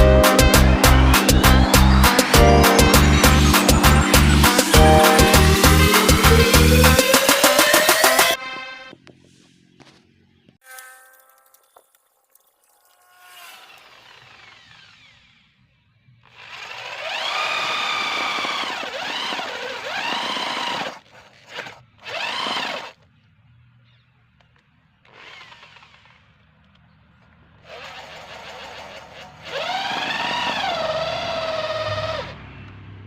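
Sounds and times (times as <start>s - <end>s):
electric drill motor spinning: 0.7s - 8.4s, 12.9s - 23.0s, 25.0s - 26.8s, 27.6s - 32.4s.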